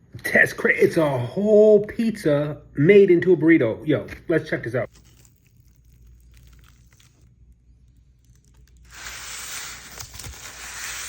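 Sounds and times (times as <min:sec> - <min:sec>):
wrapping rustling: 0:04.9 - 0:11.0
wrapping tearing: 0:04.9 - 0:11.0.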